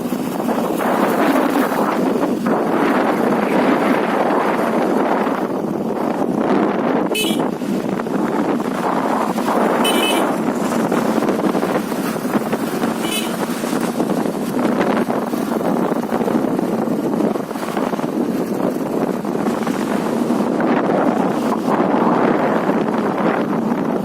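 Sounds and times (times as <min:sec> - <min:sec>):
road noise: 0:00.0 - 0:24.0
wind rushing over microphone: 0:00.0 - 0:24.0.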